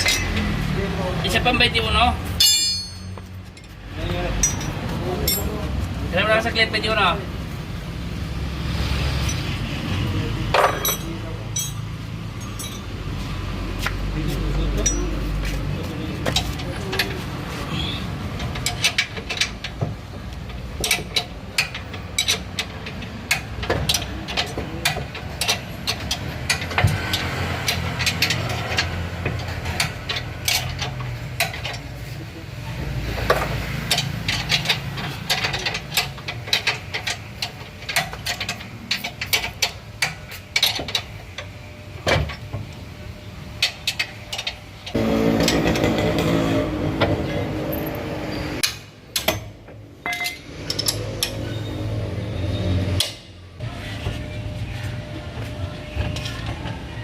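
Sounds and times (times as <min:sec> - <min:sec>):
metal tools clinking and knocking: 0:00.0 - 0:00.6, 0:02.4 - 0:05.7, 0:10.5 - 0:13.2, 0:14.7 - 0:15.6, 0:16.2 - 0:32.0, 0:33.2 - 0:41.5, 0:47.7 - 0:51.7.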